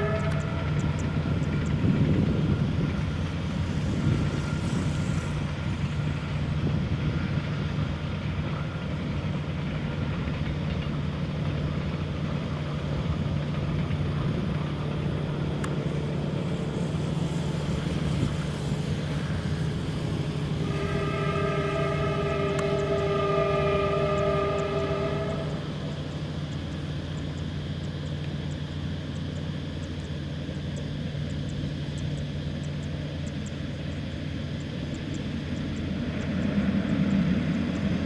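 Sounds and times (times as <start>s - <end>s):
train horn: 0.0s - 7.8s, 17.6s - 26.0s
train rumbling: 0.0s - 38.0s.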